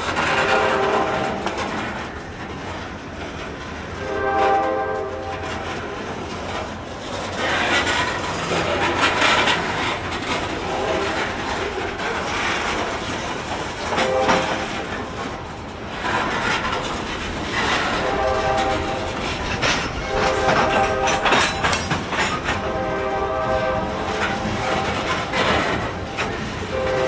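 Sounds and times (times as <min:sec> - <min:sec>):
train horn blasts: 0:00.0 - 0:02.0, 0:03.9 - 0:06.1, 0:10.5 - 0:12.1, 0:13.8 - 0:15.3, 0:17.5 - 0:27.0
train wheels clattering on rails: 0:00.0 - 0:27.0.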